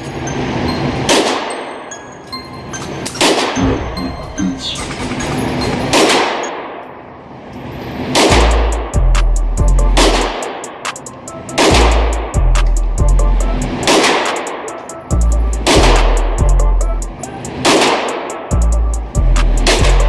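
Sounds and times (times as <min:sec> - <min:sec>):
echoing gunshots: 0:01.1 - 0:01.7, 0:03.2 - 0:03.8, 0:05.8 - 0:06.8, 0:08.1 - 0:09.0, 0:09.9 - 0:11.0, 0:11.6 - 0:12.4, 0:13.7 - 0:14.7, 0:15.6 - 0:16.4, 0:17.6 - 0:18.5.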